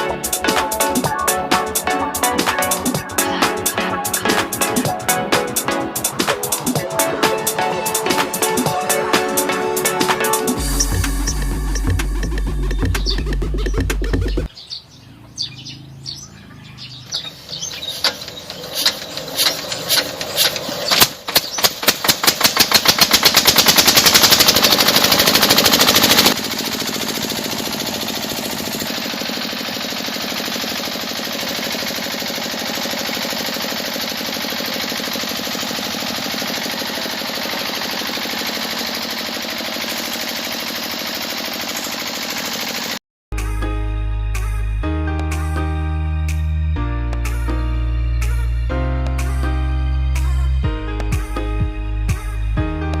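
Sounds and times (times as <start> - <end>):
model diesel engine running: 0.0 - 14.5, 15.7 - 43.0.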